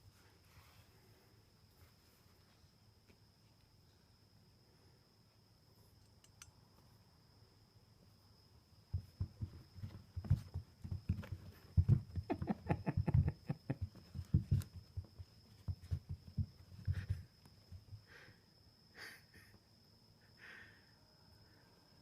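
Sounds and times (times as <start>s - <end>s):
faint rustles: 0.0s - 2.8s
soft thumps and taps: 8.9s - 18.0s.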